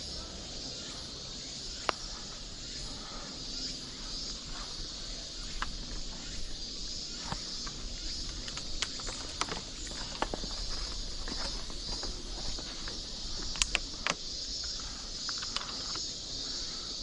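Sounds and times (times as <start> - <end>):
cicadas chorus: 0.0 - 17.0
footsteps on trail: 4.5 - 16.2.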